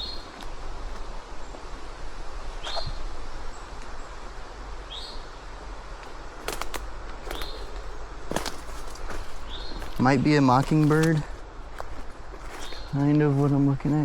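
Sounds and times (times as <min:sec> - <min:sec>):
songbird chip calls: 0:00.0 - 0:00.3, 0:02.6 - 0:03.8, 0:04.9 - 0:05.4.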